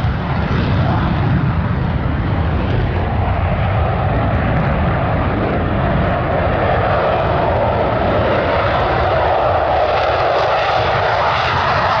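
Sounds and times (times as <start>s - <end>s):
fighter jet engine rush: 0.0s - 12.0s.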